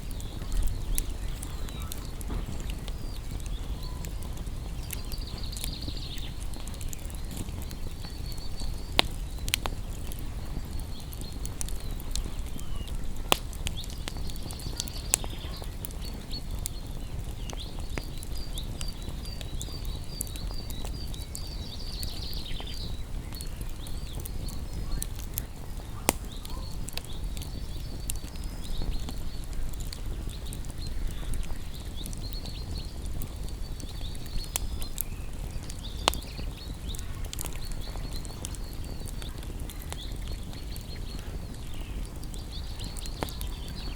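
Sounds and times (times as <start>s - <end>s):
low rumble of flames: 0.0s - 43.9s
wood crackling and popping: 0.0s - 43.9s
faint high chirping: 0.3s - 9.6s.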